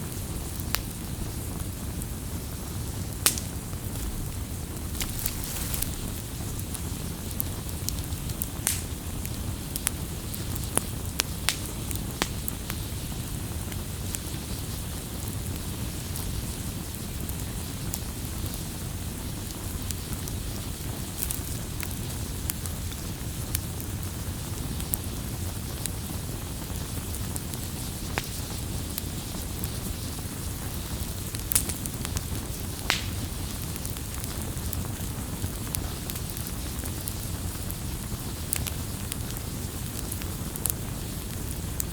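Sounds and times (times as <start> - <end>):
campfire crackling: 0.0 - 41.9
sharp pops of burning wood: 2.6 - 14.4, 25.8 - 41.9.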